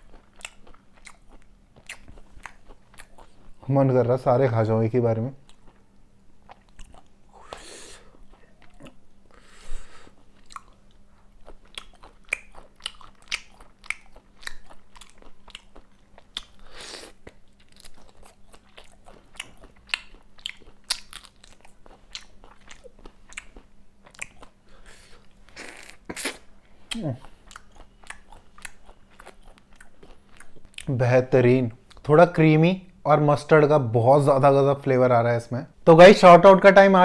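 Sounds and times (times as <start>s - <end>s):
person chewing: 0.0s - 3.7s, 5.4s - 30.9s
wet mouth clicks and smacks: 11.7s - 14.8s.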